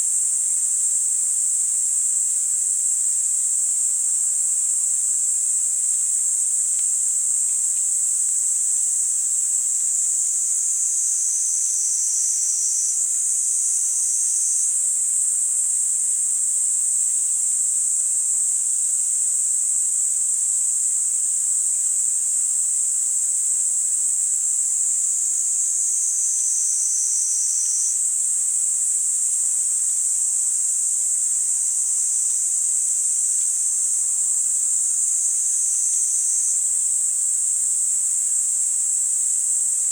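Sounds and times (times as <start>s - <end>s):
lower cicada buzz: 0.0s - 39.9s
cicadas buzzing: 4.6s - 17.6s, 23.4s - 39.9s.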